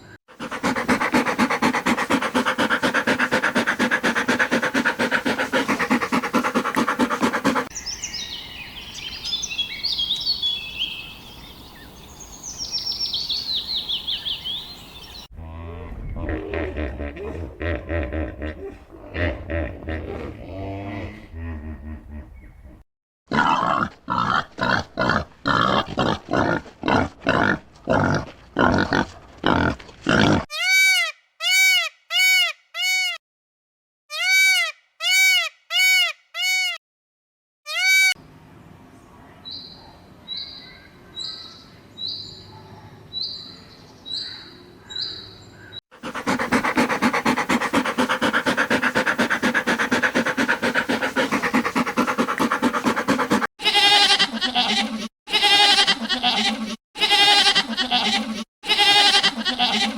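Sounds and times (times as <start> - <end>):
chorus of animal calls: 46.0 - 54.2.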